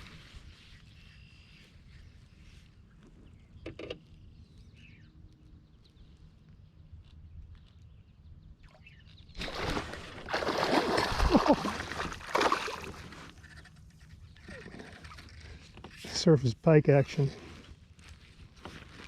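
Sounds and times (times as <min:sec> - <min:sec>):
faint bird chirp: 0:00.6 - 0:06.3
fish splashing in water: 0:09.4 - 0:13.3.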